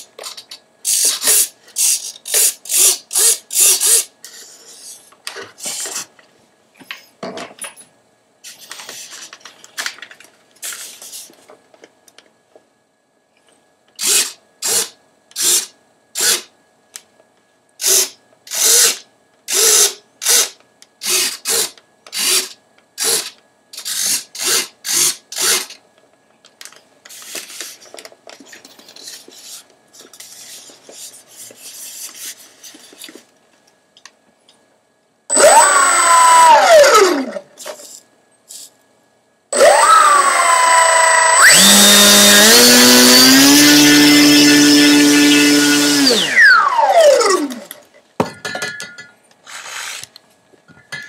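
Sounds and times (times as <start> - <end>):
electric motor whining: 39.6 - 47.6.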